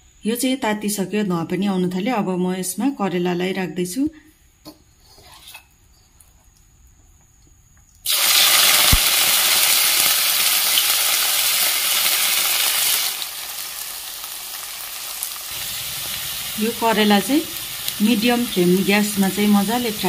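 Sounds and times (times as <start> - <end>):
deep-frying sizzle: 8.0 - 20.0.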